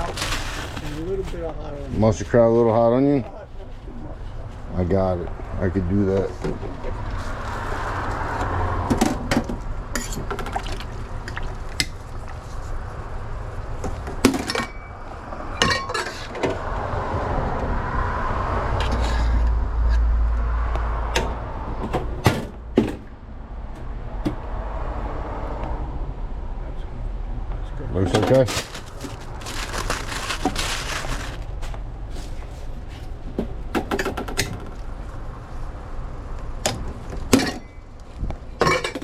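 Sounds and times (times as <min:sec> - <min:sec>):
steady background hum: 0:26.2 - 0:39.0
utensils and lids clinking: 0:38.6 - 0:39.0.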